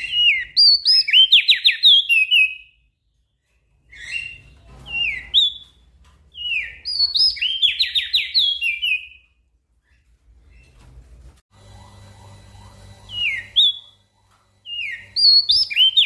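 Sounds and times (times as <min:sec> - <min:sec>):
bird singing whistled phrases: 0:06.4 - 0:09.2, 0:14.7 - 0:16.0.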